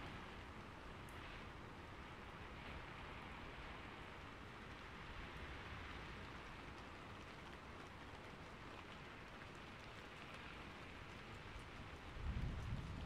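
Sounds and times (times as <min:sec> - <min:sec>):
rain falling: 0:00.0 - 0:13.0
rain drop ticks: 0:05.9 - 0:13.0.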